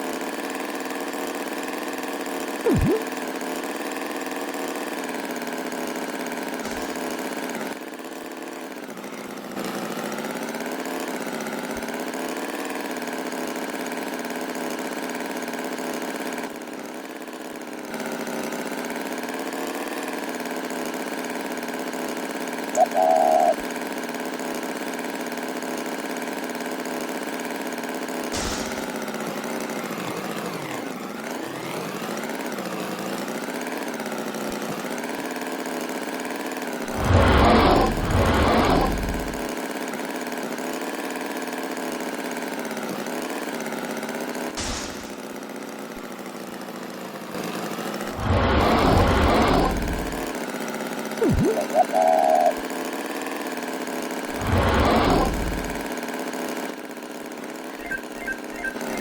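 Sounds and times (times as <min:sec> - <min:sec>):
engine running: 0:00.0 - 0:59.0
short loud beep: 0:57.8 - 0:59.0.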